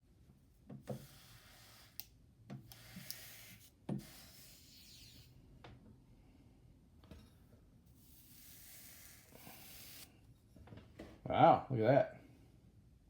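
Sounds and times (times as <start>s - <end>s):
steam iron hissing: 0.9s - 2.0s, 2.7s - 4.8s, 8.3s - 10.1s.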